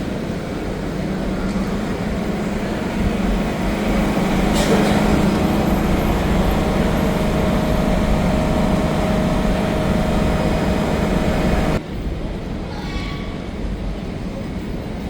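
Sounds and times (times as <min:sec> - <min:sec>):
metro train running: 0:00.0 - 0:15.0
faint rising whine: 0:00.1 - 0:11.8.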